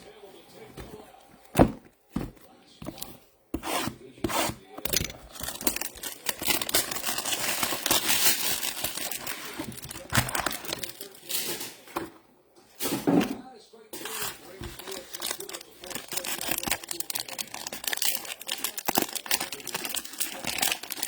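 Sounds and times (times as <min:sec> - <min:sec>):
card pack wrappers tearing and crinkling: 0:04.8 - 0:11.7, 0:14.0 - 0:21.0.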